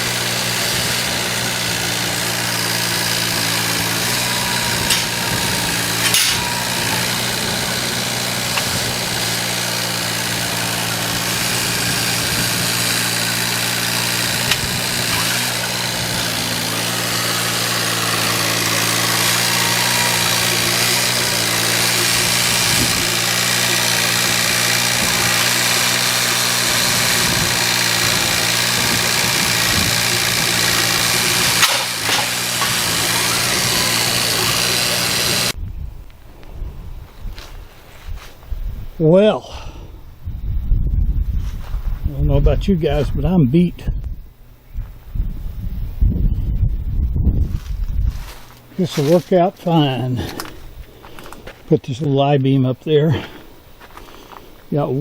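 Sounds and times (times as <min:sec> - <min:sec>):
engine idling: 0:00.0 - 0:35.6.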